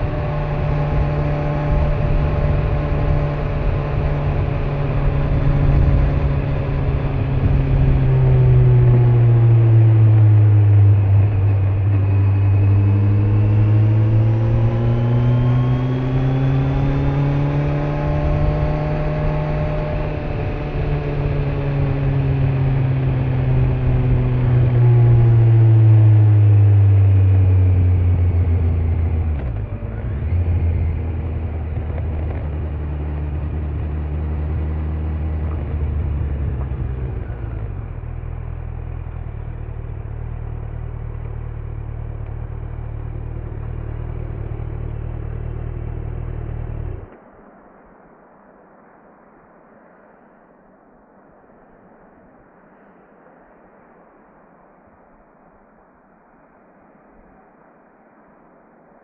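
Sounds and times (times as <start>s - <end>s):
motorcycle engine: 0.0s - 47.2s
wind and road noise: 0.0s - 59.0s.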